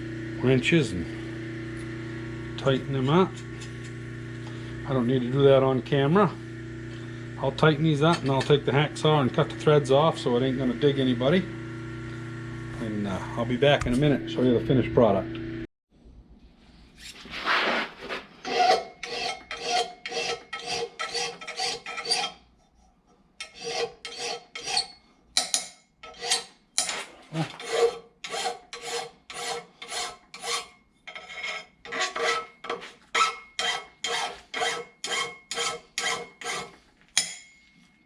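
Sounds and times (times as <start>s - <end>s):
hand tool filing steel bolts: 18.4s - 22.8s, 23.4s - 37.5s.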